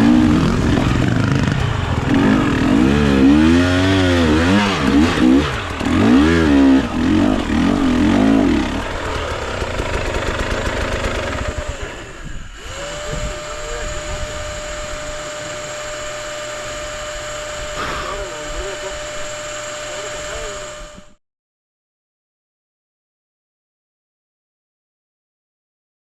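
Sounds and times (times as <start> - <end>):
dirt bike engine revving: 0.0 - 20.8.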